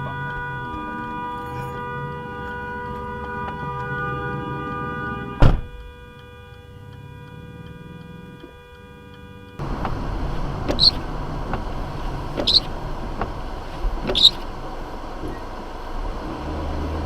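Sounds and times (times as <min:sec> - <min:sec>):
vehicle road noise: 0:00.0 - 0:17.0
faint regular ticking: 0:05.8 - 0:16.2
sharp knocks or squeaks: 0:10.7 - 0:11.6, 0:12.3 - 0:13.4, 0:14.0 - 0:14.5.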